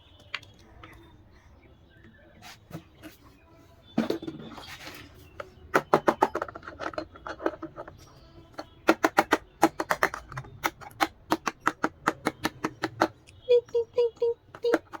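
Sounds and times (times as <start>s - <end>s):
plastic toy pieces clicking: 5.7s - 13.4s, 14.5s - 15.0s.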